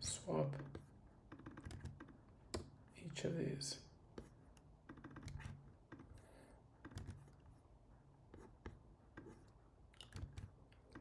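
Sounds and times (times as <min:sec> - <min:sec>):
keyboard and mouse clicks: 0:01.3 - 0:02.7, 0:04.9 - 0:06.2, 0:06.8 - 0:07.4, 0:09.2 - 0:11.0.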